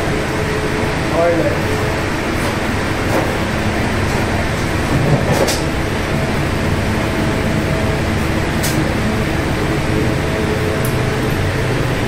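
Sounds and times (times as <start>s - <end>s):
moving train running noise: 0.0s - 12.0s.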